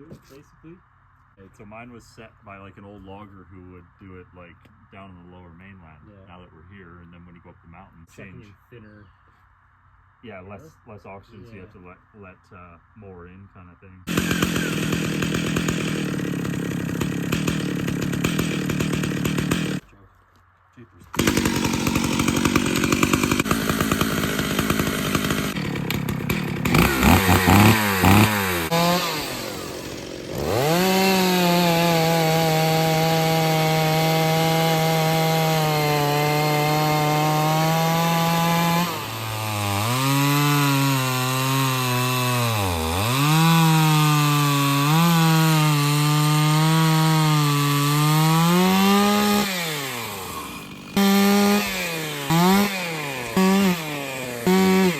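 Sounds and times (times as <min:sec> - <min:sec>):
chainsaw cutting wood: 0:14.1 - 0:19.8, 0:21.1 - 0:54.9
chainsaw revving: 0:14.1 - 0:19.8, 0:21.1 - 0:54.9.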